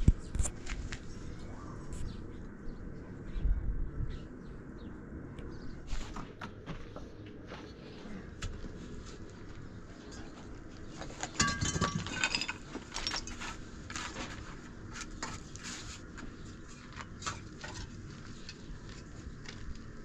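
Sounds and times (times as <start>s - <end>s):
objects knocking and clinking: 11.3s - 13.4s
ringing metallic clatter: 11.4s - 13.4s.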